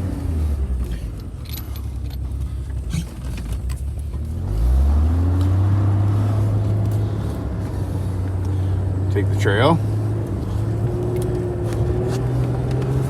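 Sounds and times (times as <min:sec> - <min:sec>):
vehicle engine running and revving: 0:00.0 - 0:13.0
light metallic clinks and rattles: 0:00.6 - 0:04.6.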